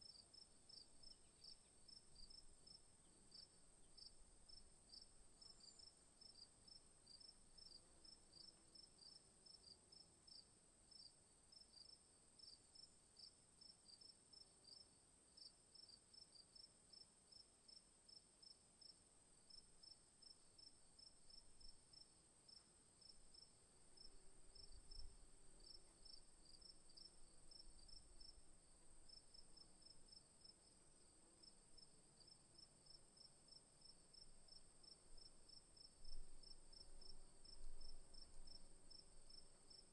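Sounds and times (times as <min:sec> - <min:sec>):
crickets chirping: 0:18.8 - 0:39.9.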